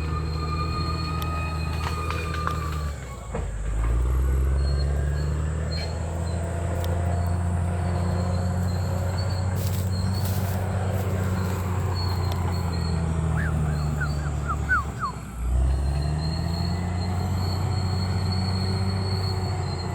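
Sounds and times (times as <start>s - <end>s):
bulldozer diesel engine under load: 0.0s - 19.9s
short high squeaks: 4.3s - 15.2s.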